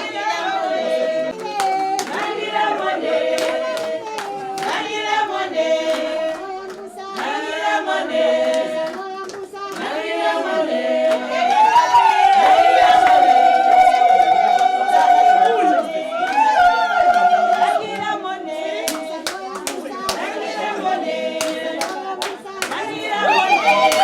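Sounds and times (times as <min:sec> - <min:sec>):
group singing: 0:00.0 - 0:24.0
hand clapping: 0:01.3 - 0:05.2, 0:05.8 - 0:07.5, 0:08.4 - 0:10.1, 0:18.8 - 0:20.4, 0:21.3 - 0:24.0.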